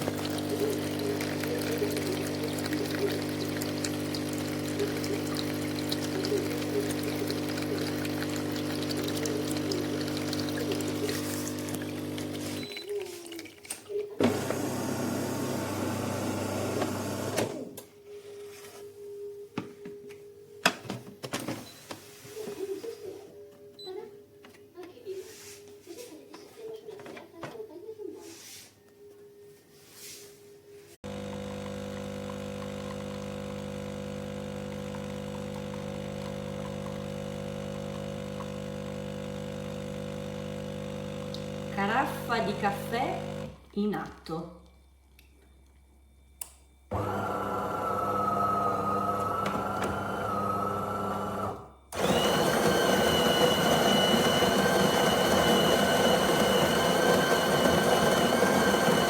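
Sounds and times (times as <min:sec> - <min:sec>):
coffee machine motor whirr: 0:00.0 - 0:12.7, 0:14.2 - 0:17.7, 0:31.0 - 0:43.6, 0:46.9 - 0:59.0
coffee machine pump hum: 0:00.0 - 0:13.2, 0:13.9 - 0:17.7, 0:31.0 - 0:43.6, 0:46.9 - 0:59.0.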